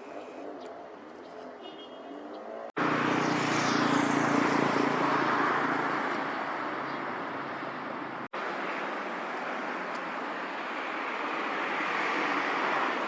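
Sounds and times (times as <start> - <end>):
passing vehicle engine: 2.7 - 8.1.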